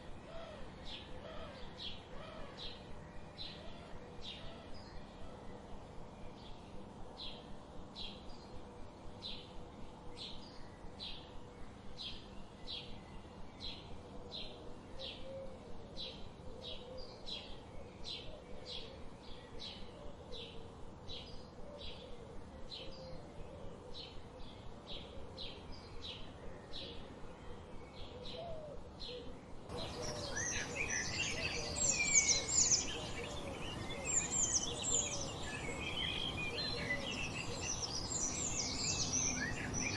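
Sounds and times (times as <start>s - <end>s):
faint lower bird calls: 10.3s - 39.9s
birds chirping and trilling: 21.2s - 39.9s.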